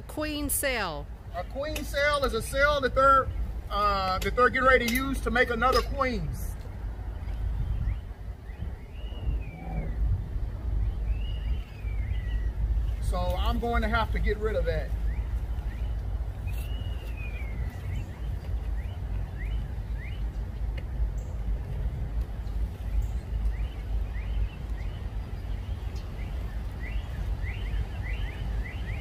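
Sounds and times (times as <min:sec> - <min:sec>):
steady low rumble: 0:00.0 - 0:29.0
wild birds chirping: 0:01.1 - 0:29.0.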